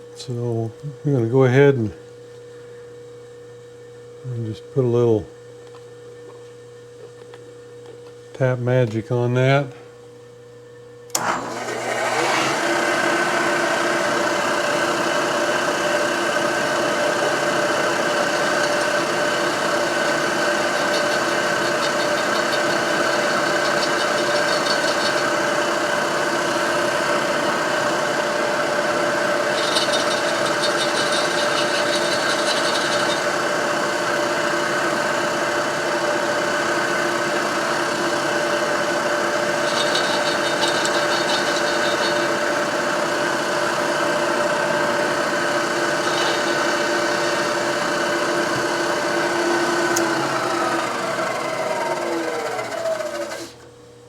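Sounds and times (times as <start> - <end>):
drilling machine motor: 11.1 - 53.7
drill bit rasping in metal: 12.5 - 53.6.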